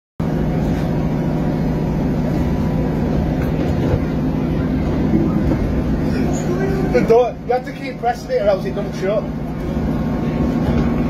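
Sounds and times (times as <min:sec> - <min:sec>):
passenger train rumbling: 0:00.2 - 0:11.0.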